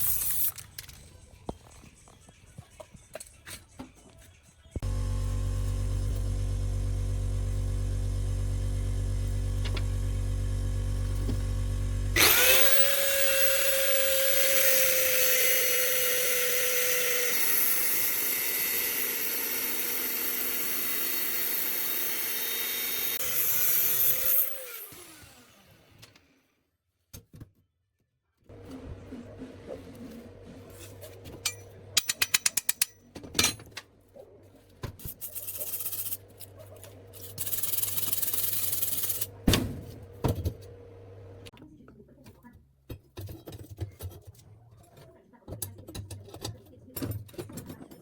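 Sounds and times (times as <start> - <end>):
power tool whining: 4.8 - 26.3.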